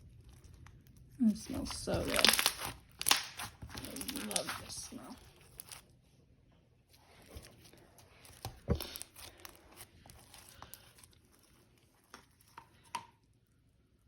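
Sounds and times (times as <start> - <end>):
slime squished sticky pops: 1.6 - 4.8.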